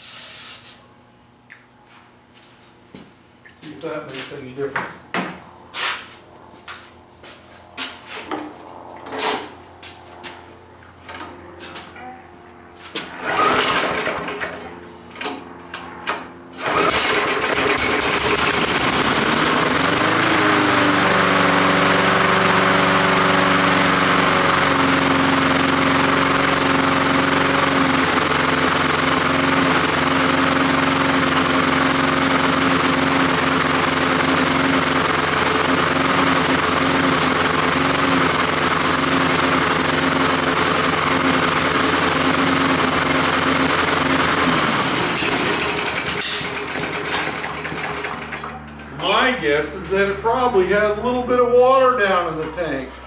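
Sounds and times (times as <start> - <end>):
lawn mower engine running: 12.5 - 53.0
lawn mower handling knocks and clicks: 45.0 - 49.1.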